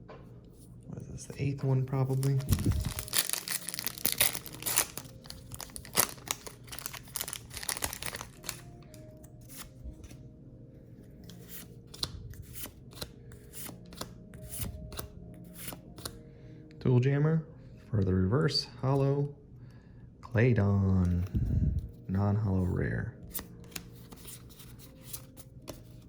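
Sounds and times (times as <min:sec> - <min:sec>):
foil pack crinkling: 0:02.0 - 0:08.7
cards clicking and sliding: 0:11.2 - 0:16.2, 0:23.3 - 0:26.0.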